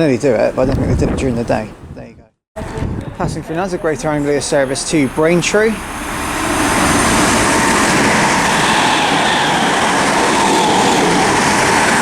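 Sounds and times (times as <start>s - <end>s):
train wheels on rail: 3.5s - 12.0s.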